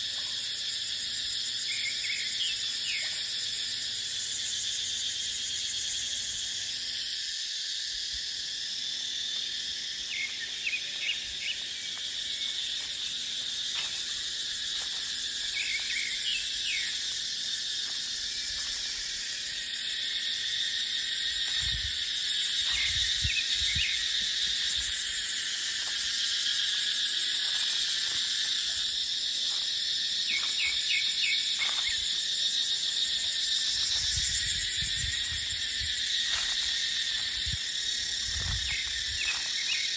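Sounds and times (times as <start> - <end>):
cicadas buzzing: 0.0 - 39.9
wind rumbling on microphone: 21.6 - 24.0, 33.8 - 36.5, 38.2 - 39.4.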